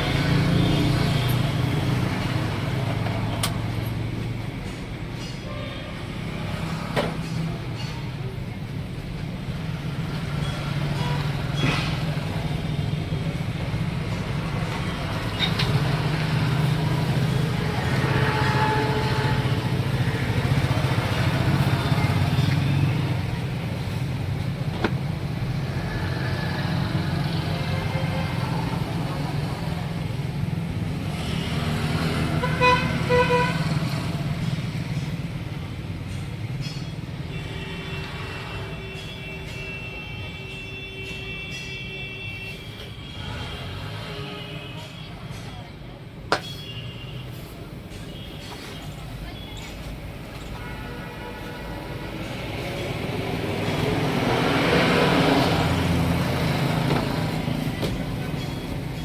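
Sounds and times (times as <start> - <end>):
passing traffic: 0.0 - 59.0
vehicle horn honking: 32.4 - 33.6.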